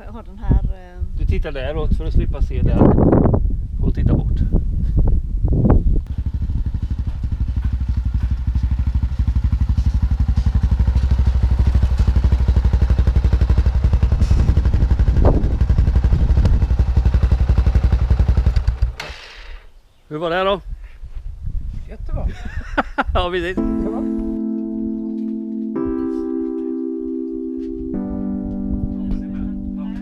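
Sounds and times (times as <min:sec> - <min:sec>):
motorcycle engine running: 0:05.7 - 0:19.6.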